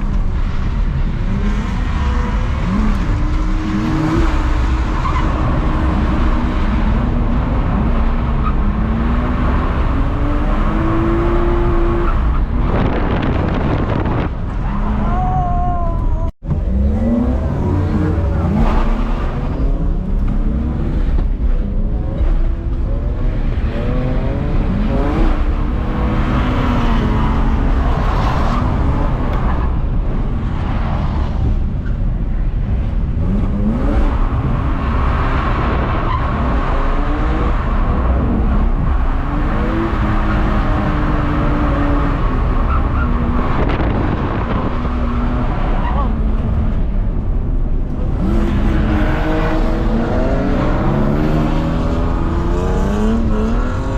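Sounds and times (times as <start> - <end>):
car engine revving: 16.4 - 31.7.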